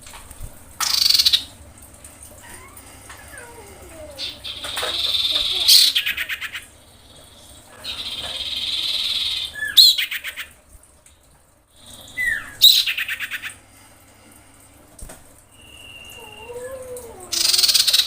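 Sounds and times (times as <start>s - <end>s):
bird buzzy churr call: 0.8s - 1.5s, 2.4s - 10.6s, 15.6s - 18.0s.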